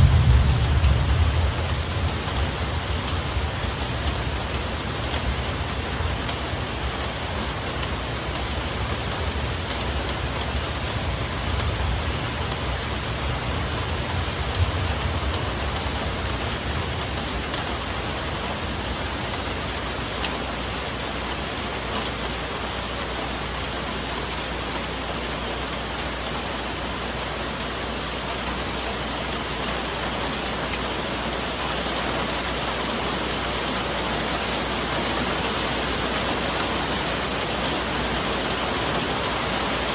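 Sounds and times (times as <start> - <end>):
low rumble: 0.0 - 5.6
rain on foliage: 0.0 - 39.9.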